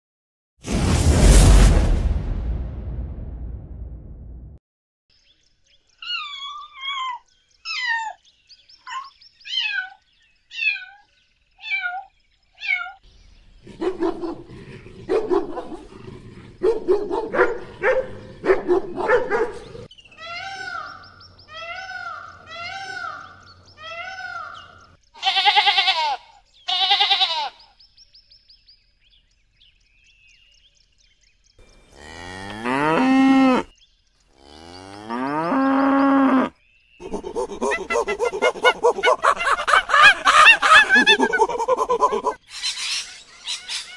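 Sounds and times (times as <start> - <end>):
cat meowing: 11.6 - 13.0
dog barking: 13.6 - 19.9
sheep bleating: 25.2 - 27.6.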